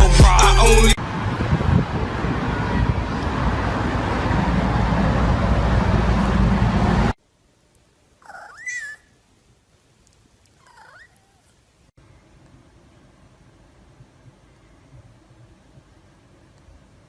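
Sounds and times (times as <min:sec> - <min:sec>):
loud steady rushing noise: 0:00.0 - 0:07.2.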